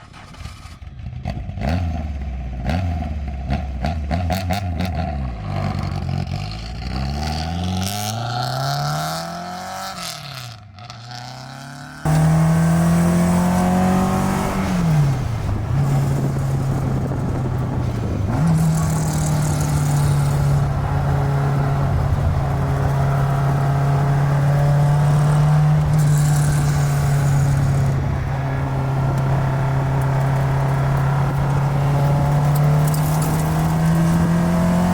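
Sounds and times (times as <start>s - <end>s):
car engine from inside: 12.0s - 34.9s.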